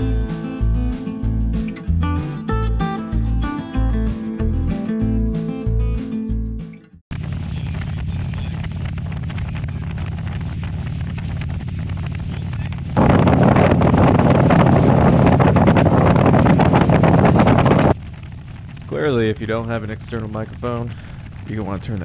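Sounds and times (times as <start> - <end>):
motorcycle engine running: 7.2 - 22.0
wind noise: 7.8 - 22.0.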